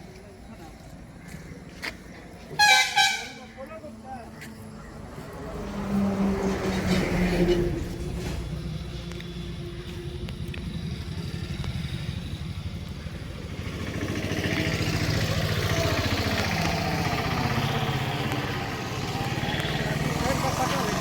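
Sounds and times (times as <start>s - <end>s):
vehicle engine running: 7.7s - 21.0s.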